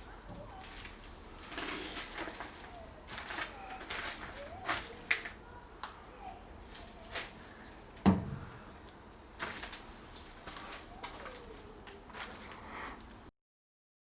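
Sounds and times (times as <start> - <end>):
dull thump: 8.0 - 8.7.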